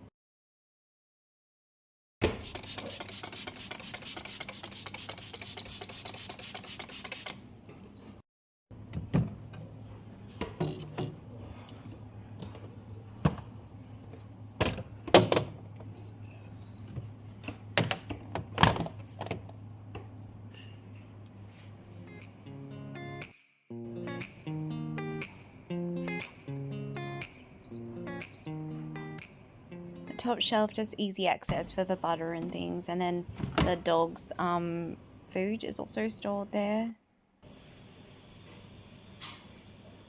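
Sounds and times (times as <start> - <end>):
scrubbing strokes: 2.4 - 7.3.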